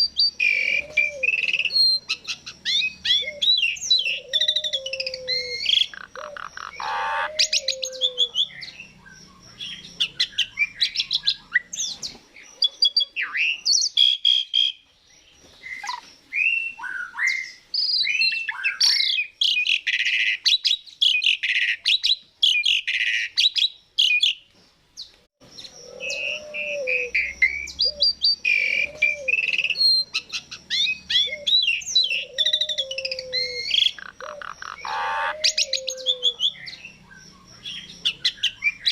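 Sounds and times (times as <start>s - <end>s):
starling singing: 0.0s - 14.8s, 25.4s - 38.9s.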